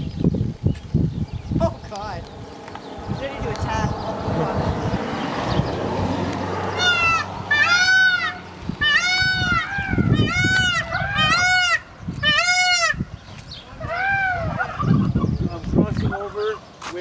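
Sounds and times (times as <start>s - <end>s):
bird honking calls: 6.6s - 15.4s.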